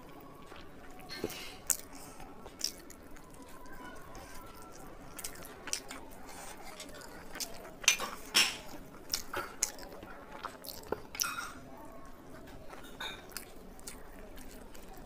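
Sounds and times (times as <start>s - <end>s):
wet mouth smacks chewing: 0.1s - 11.2s.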